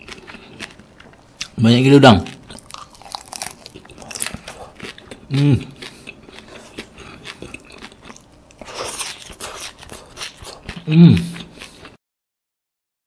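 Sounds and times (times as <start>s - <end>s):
person chewing: 0.0s - 1.6s, 2.3s - 12.0s
person humming: 5.3s - 5.8s, 10.8s - 11.5s.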